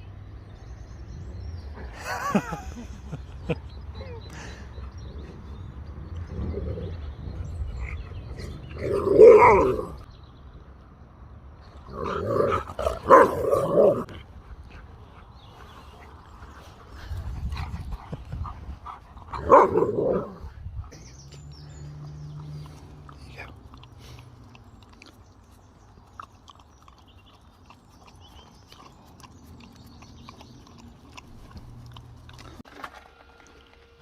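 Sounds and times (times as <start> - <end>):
dog barking and howling: 8.9 - 10.0, 12.5 - 14.1, 19.4 - 20.4.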